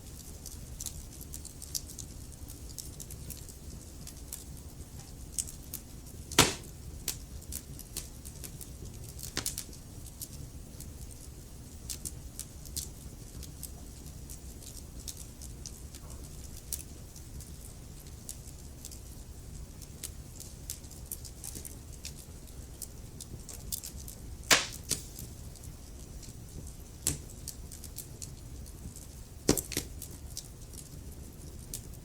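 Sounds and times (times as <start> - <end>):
low rumble of flames: 0.0 - 32.0
wood fire crackling: 0.0 - 32.0
logs crackling and popping: 5.4 - 9.8, 20.7 - 31.0
loud fire pop: 6.4 - 6.7, 24.5 - 25.1.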